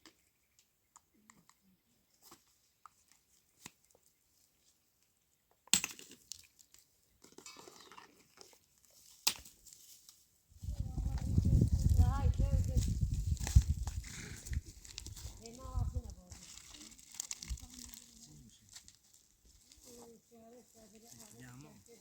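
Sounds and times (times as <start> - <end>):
crackling and rustling: 6.6 - 22.0.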